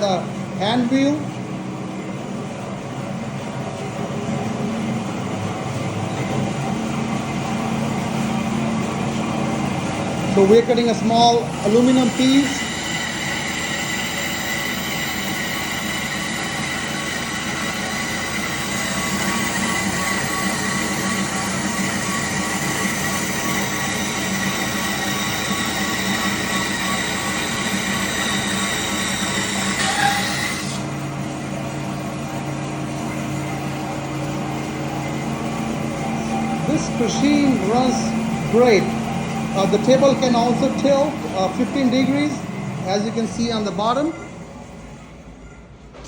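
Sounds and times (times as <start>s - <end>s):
bandsaw cutting aluminum: 10.3s - 31.1s.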